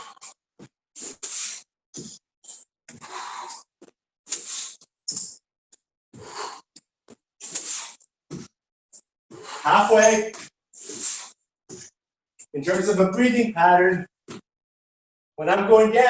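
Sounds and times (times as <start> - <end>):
person breathing hard: 1.0 - 3.7, 6.2 - 6.8.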